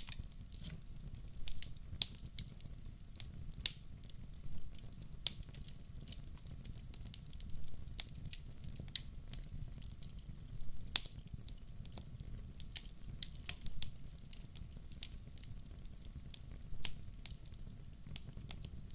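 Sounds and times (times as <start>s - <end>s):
wood fire crackling: 0.0s - 18.9s.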